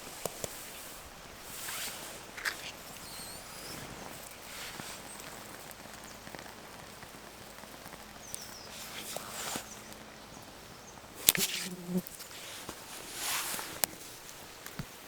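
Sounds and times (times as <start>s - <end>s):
soft rustling: 0.0s - 15.0s
faint bird chirps: 2.6s - 4.2s.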